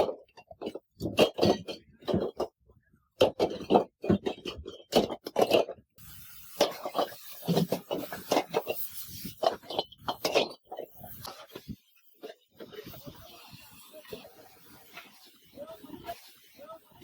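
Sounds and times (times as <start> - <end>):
steady hiss: 6.0 - 17.0
metal scraping and knocking: 6.4 - 13.9.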